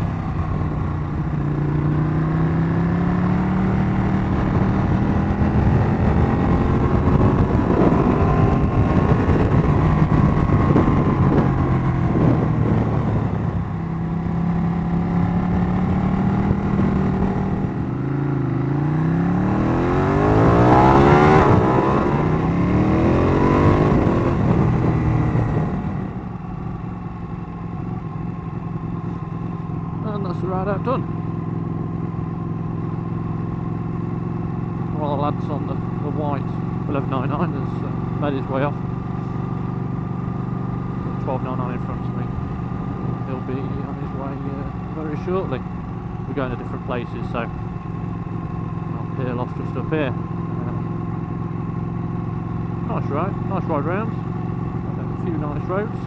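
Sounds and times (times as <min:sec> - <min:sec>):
motorcycle engine revving: 0:00.0 - 0:56.0
wind on microphone: 0:04.2 - 0:18.0, 0:19.0 - 0:26.3.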